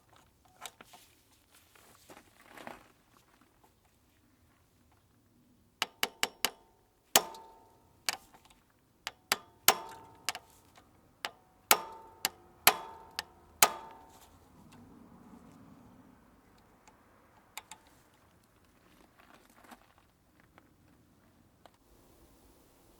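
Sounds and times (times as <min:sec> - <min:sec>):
sharp metallic clicks and clinks: 0:05.8 - 0:08.4, 0:09.1 - 0:14.8.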